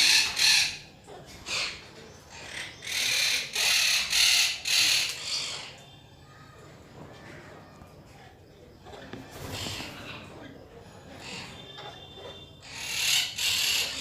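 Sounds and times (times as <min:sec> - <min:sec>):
parrot squawking: 0:00.0 - 0:05.8, 0:11.2 - 0:14.0.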